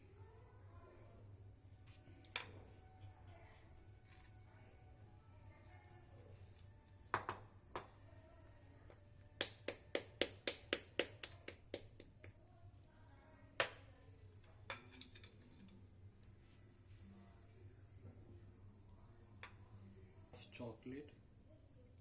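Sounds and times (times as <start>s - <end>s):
utensil tapping a dish: 7.1s - 8.0s, 9.4s - 12.4s.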